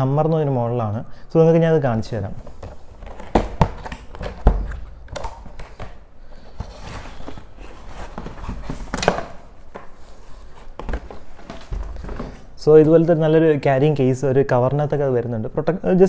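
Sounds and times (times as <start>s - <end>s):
packaging rustling: 1.9s - 12.7s.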